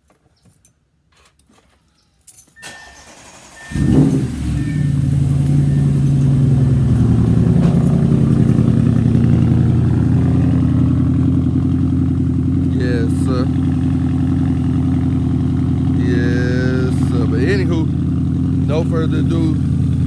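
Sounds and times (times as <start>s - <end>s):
car engine starting and idling: 2.6s - 20.0s
short chime tones: 3.6s - 7.1s.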